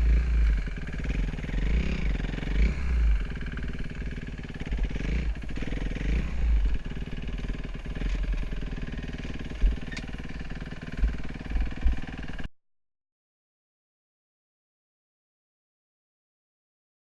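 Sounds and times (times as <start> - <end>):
motocross bike engine: 0.0 - 12.5.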